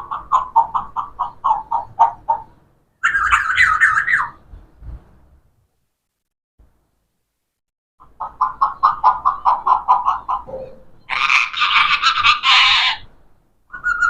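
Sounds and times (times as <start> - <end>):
parrot calling: 0.0 - 4.4, 8.2 - 13.1, 13.7 - 14.0.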